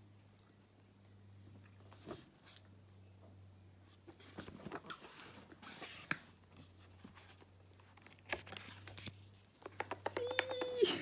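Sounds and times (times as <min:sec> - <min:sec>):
cards rustling: 0:07.0 - 0:11.0.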